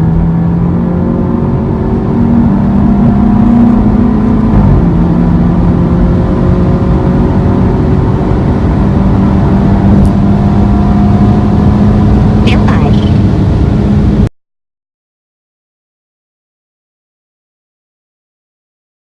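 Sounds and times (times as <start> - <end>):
car exhaust drone: 0.0 - 14.3.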